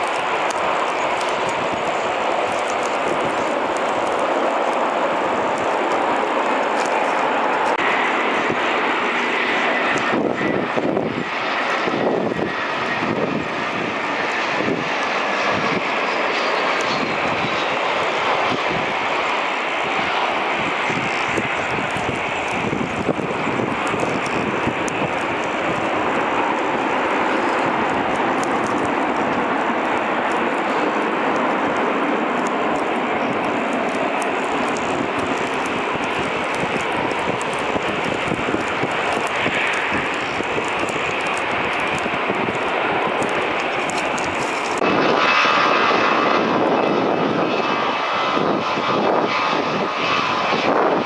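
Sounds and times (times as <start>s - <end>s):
jet engines rushing past: 0.0s - 51.0s.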